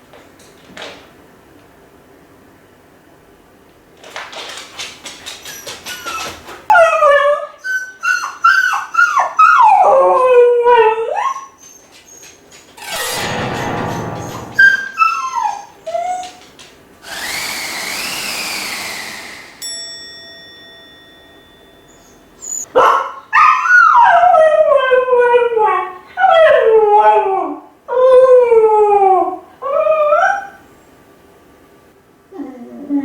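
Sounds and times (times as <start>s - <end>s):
dog whining: 21.9s - 22.7s.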